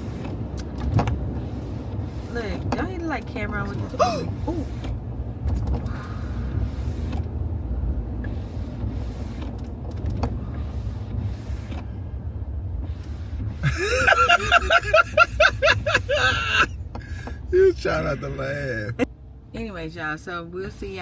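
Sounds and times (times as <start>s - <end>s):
road noise inside moving car: 0.0s - 21.0s
person laughing: 13.6s - 19.1s.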